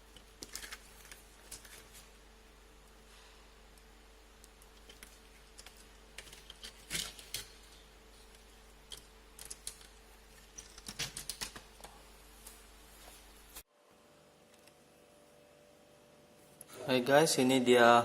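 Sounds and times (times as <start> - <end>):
plastic parts clicking: 0.1 - 1.9, 4.4 - 7.6, 8.3 - 11.7.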